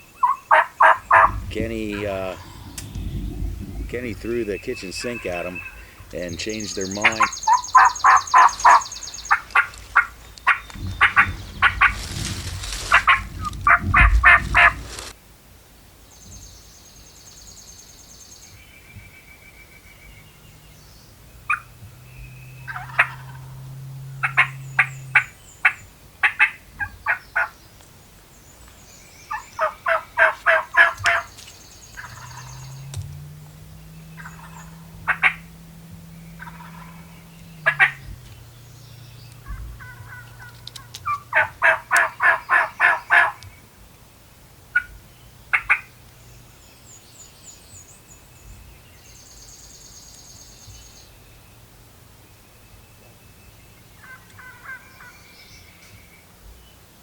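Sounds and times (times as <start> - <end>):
turkeys gobbling: 0.0 - 15.1, 21.4 - 21.9, 22.5 - 27.5, 29.3 - 33.0, 33.8 - 38.4, 39.3 - 43.4, 44.7 - 46.0, 54.0 - 55.1
wind or handling rumble: 0.0 - 15.2, 18.6 - 26.0, 26.6 - 44.1
turkey call yelps: 0.2 - 1.4, 5.5 - 12.0, 12.9 - 14.8, 21.5 - 21.7, 22.7 - 27.5, 29.3 - 31.3, 32.0 - 32.7, 34.1 - 35.5, 36.4 - 38.1, 39.4 - 43.4, 44.7 - 44.9, 45.5 - 45.9, 54.0 - 55.1
low steady hum: 0.8 - 15.8, 18.9 - 26.1, 30.5 - 42.5.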